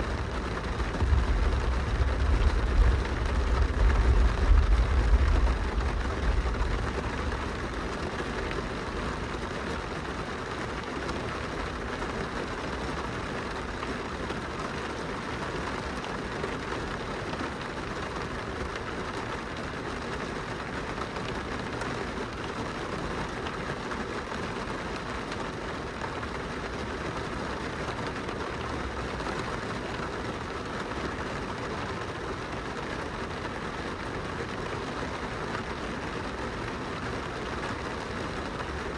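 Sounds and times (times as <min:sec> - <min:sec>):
low rumble: 0:00.0 - 0:09.3
rain pattering on glass window: 0:00.0 - 0:38.9.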